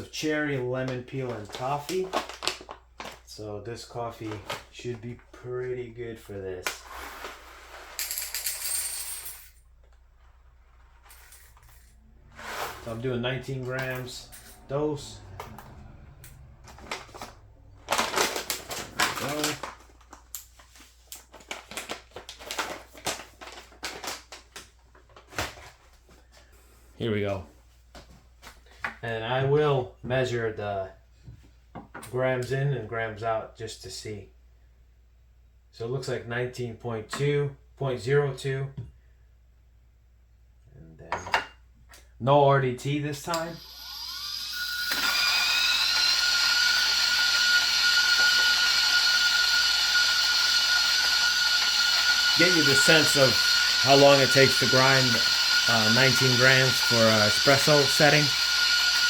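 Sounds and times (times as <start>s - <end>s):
coffee beans rattling: 44.6s - 59.0s.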